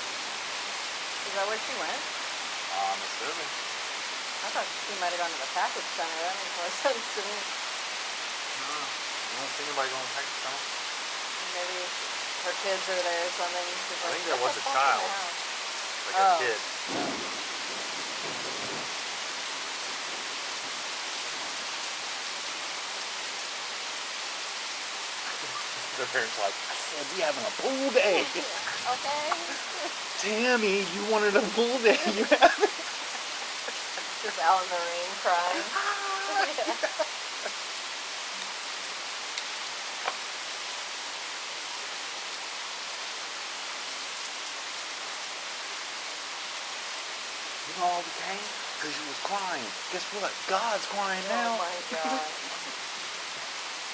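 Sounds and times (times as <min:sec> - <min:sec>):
steady rain hiss: 0:00.0 - 0:53.9.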